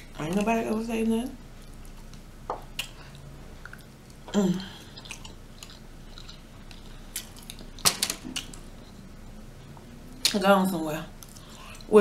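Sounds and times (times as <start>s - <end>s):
mouth chewing and smacking: 1.6s - 9.1s.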